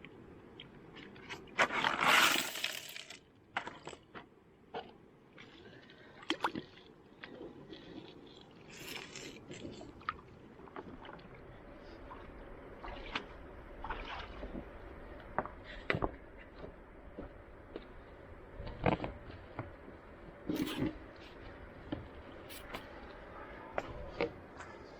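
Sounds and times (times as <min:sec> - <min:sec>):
gravel and water sloshing: 0:00.8 - 0:24.9.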